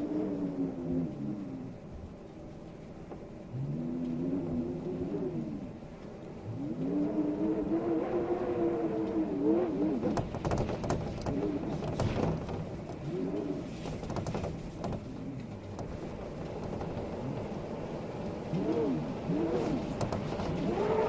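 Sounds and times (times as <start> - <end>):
wind howling: 0.0 - 21.0
sharp clicks and knocks: 10.0 - 17.6, 19.9 - 20.7.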